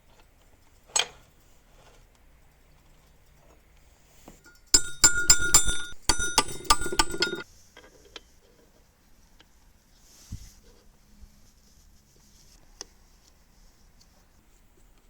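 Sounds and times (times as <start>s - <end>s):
metal parts clinking and rattling: 4.5s - 7.4s.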